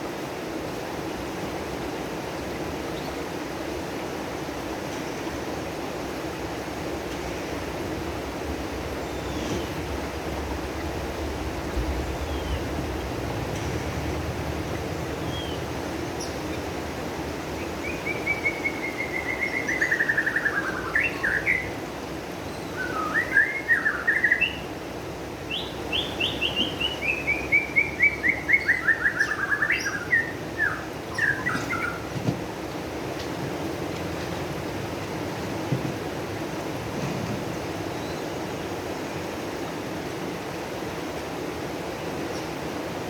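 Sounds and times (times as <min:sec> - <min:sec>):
steady rushing noise: 0:03.5 - 0:17.8
songbird singing: 0:08.7 - 0:35.7, 0:37.7 - 0:39.4, 0:42.0 - 0:42.8
bird chirping: 0:15.2 - 0:16.6, 0:17.6 - 0:21.7, 0:25.5 - 0:32.1.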